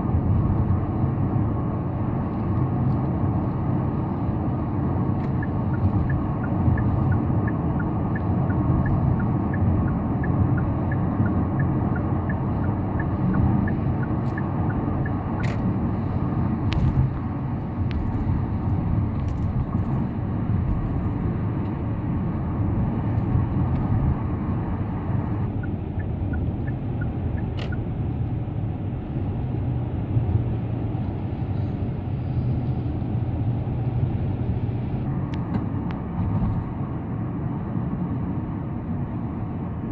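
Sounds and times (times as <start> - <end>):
car tyres and engine rumble: 0.0 - 39.9
light regular ticking: 5.2 - 15.7.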